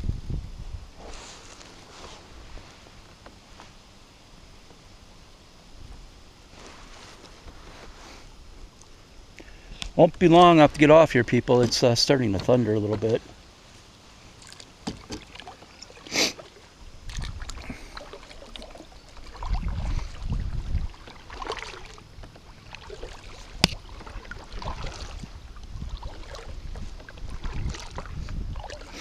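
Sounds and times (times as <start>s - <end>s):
paddle splashing in water: 14.4s - 29.0s.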